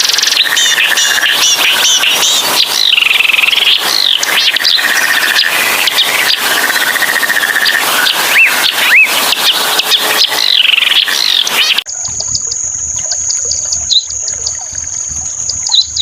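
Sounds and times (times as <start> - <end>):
rise-and-fall whistles: 0.0 - 11.9
songbird trilling and chirping: 0.0 - 16.0.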